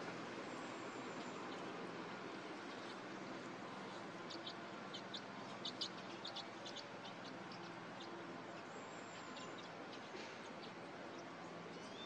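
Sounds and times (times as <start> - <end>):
bird chirping: 4.2 - 12.0.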